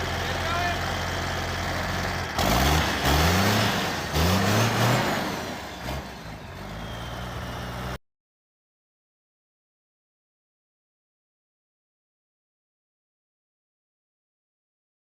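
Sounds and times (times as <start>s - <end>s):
diesel truck engine revving: 0.0s - 8.0s.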